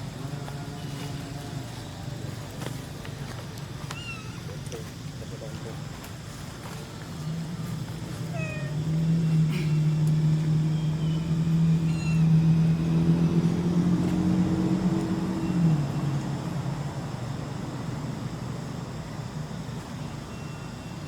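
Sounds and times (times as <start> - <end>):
low motor hum: 4.6 - 20.8.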